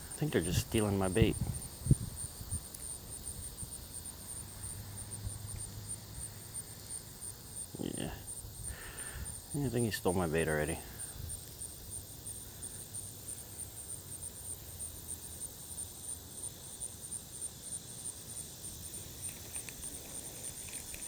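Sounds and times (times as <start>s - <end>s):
insects trilling: 0.0s - 21.0s
faint clicks: 19.2s - 21.0s.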